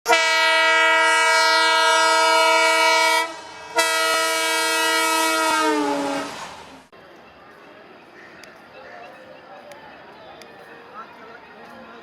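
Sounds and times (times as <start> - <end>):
train air horn blasts: 0.1 - 6.4.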